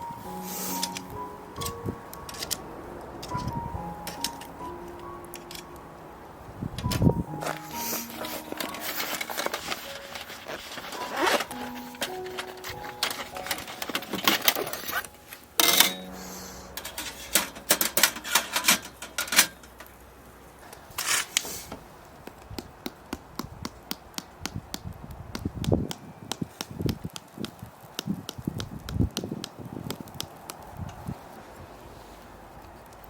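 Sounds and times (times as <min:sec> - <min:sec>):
fire crackling and popping: 0:18.9 - 0:31.6.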